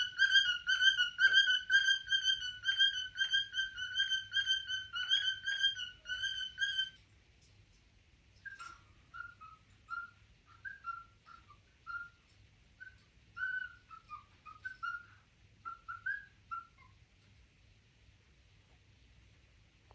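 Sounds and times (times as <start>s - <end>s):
cockatiel whistling: 0.0s - 7.0s, 8.4s - 17.0s.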